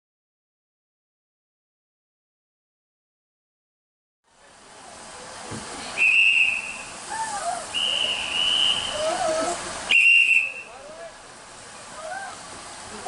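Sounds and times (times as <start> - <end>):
steam hissing: 4.8 - 13.0
high-pitched whistle blasts: 6.0 - 6.9, 7.7 - 9.2, 9.9 - 10.8.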